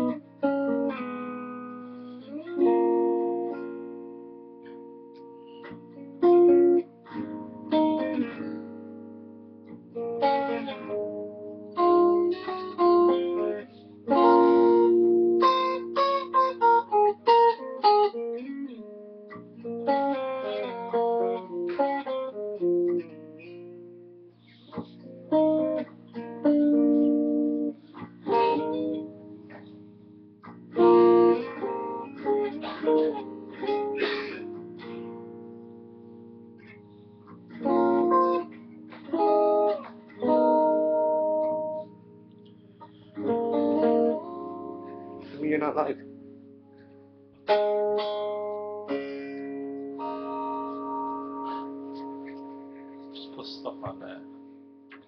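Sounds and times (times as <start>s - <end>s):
electric guitar chords and runs: 0.0s - 55.0s.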